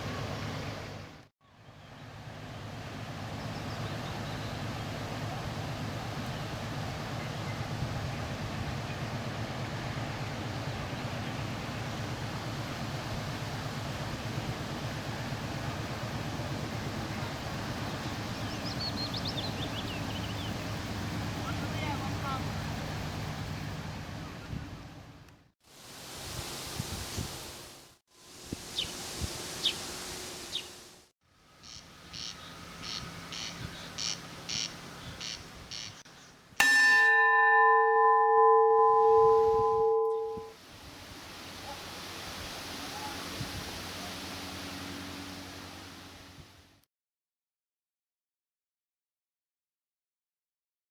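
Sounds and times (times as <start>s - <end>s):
wind and water hiss: 0.0s - 37.7s, 40.4s - 46.8s
ship engine rumble: 2.2s - 25.3s
short high chirps: 37.0s - 40.5s.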